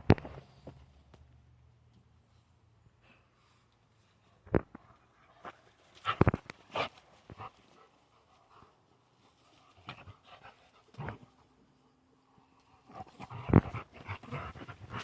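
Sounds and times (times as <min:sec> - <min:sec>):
dogs play-fighting sharp sounds: 0:05.0 - 0:11.7, 0:12.8 - 0:15.0
dogs panting: 0:05.2 - 0:11.6, 0:12.3 - 0:15.0.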